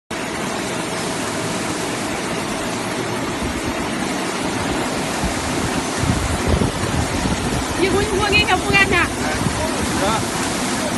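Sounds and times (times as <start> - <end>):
spraying churning water: 0.1 - 10.9.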